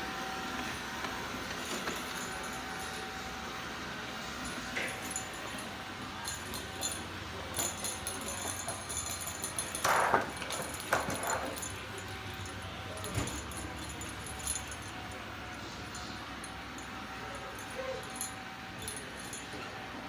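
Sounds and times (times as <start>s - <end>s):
light clicks and jingling: 4.1s - 19.8s.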